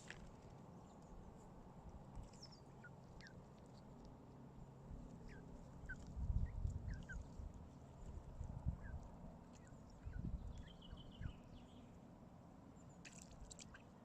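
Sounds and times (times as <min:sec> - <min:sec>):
small birds chirping: 0:02.2 - 0:04.1, 0:05.1 - 0:12.0.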